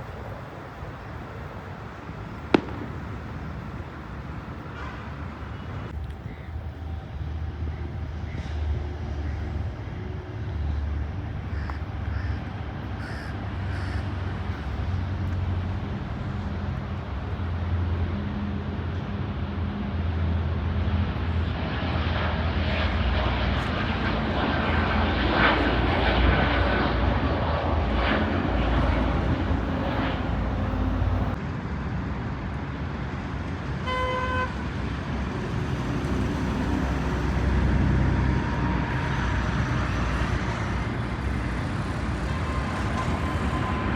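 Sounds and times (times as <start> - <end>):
jet airliner passing: 0.0 - 43.9
road traffic rumble: 0.0 - 43.9
vehicle horn toot: 33.8 - 34.6.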